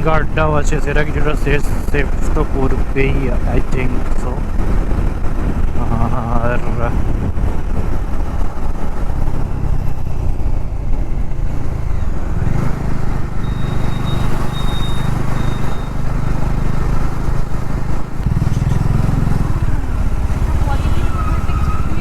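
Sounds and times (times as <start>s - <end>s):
motorcycle engine running: 0.0s - 22.0s
road and wind noise: 0.0s - 22.0s
faint high-pitched beeping: 13.4s - 16.4s.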